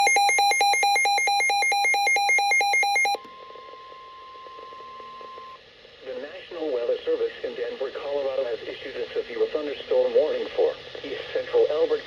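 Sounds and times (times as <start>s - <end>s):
rapid shrill alarm beeps: 0.0s - 3.2s
faint steady alarm tone: 0.0s - 5.6s.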